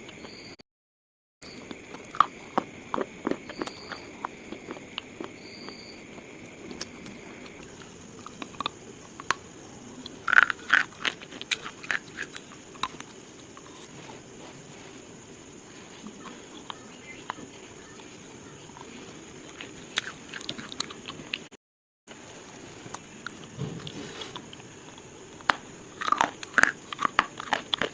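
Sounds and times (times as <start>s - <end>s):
slate crunching and snapping: 10.1s - 13.9s, 22.8s - 27.9s.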